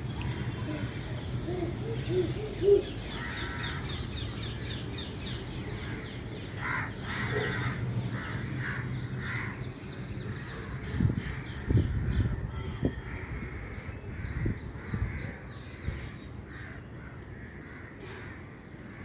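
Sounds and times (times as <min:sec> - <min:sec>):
crows cawing: 0:06.6 - 0:09.6.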